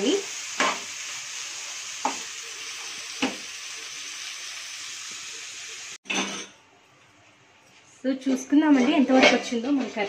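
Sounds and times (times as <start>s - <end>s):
vegetables sizzling in oil: 0.0s - 6.0s
steel spatula scraping a pan: 6.0s - 6.6s, 8.2s - 10.0s.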